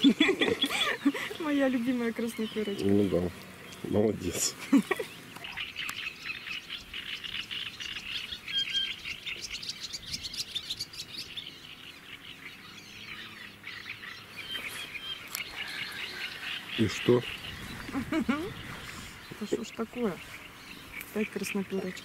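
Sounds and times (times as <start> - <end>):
birds singing and chirping: 0.0 - 22.0.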